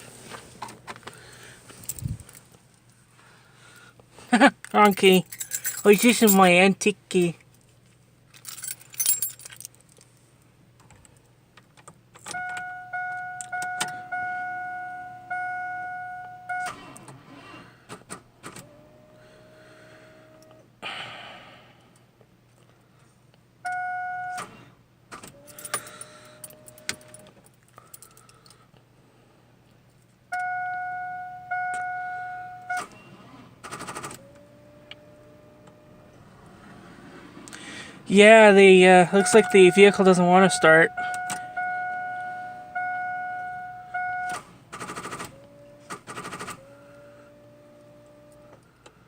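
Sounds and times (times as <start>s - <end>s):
keys jangling: 1.7s - 2.5s, 4.6s - 6.6s, 8.3s - 10.0s, 25.4s - 28.6s
warning chime dinging: 38.4s - 43.9s.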